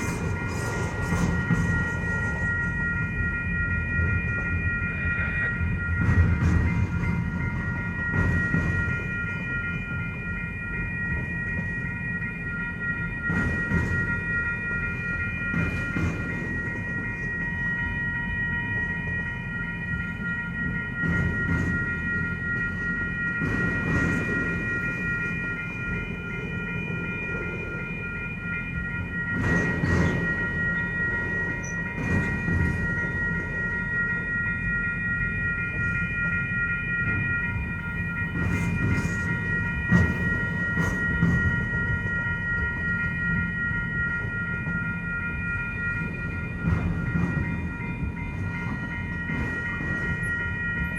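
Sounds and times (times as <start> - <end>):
freight train cars rolling: 0.0 - 50.9
high ringing tone: 0.0 - 50.9.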